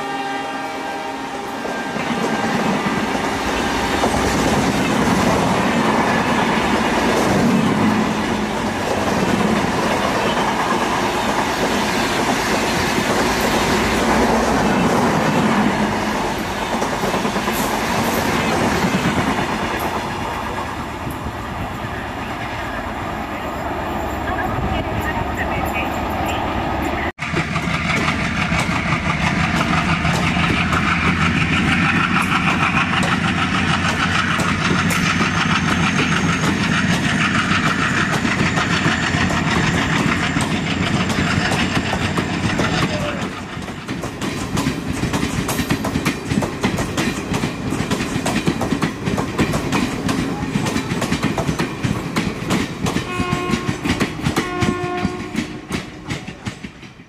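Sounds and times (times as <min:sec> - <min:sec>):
train horn blasts: 0:00.0 - 0:04.1, 0:53.0 - 0:56.0
train passing at speed: 0:00.0 - 0:57.0.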